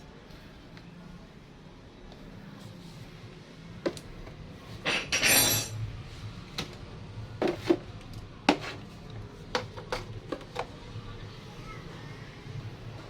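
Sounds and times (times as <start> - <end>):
metal tools clinking: 4.8 - 5.8.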